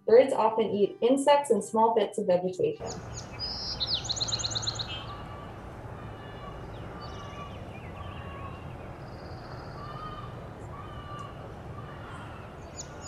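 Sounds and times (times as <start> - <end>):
faint bird calls: 2.9 - 13.0
outdoor hiss: 2.9 - 13.0.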